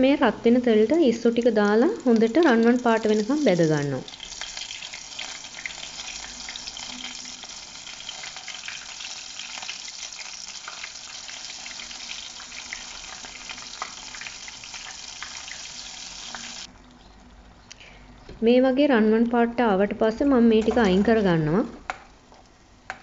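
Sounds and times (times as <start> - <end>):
prawns deep-frying in oil: 0.8 - 16.7
small crackles of frying: 0.8 - 17.3.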